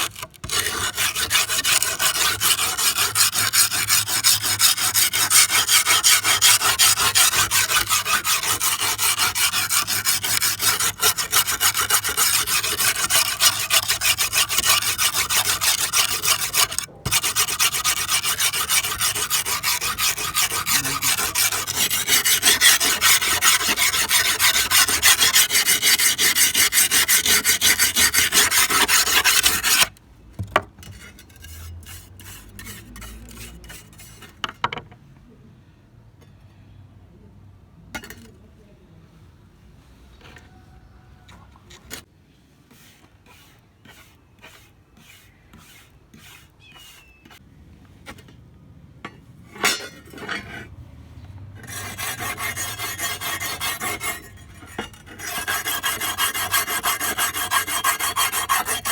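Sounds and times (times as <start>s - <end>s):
hand filing or sanding: 0.0s - 29.9s, 31.8s - 34.2s, 42.7s - 47.1s, 51.6s - 58.9s.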